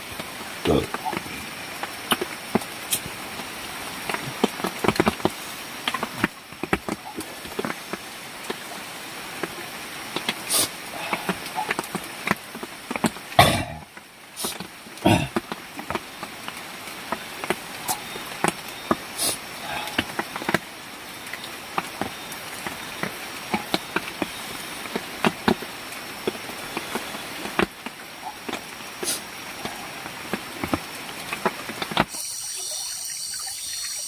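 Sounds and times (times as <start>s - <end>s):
high insect hum: 32.1s - 34.0s.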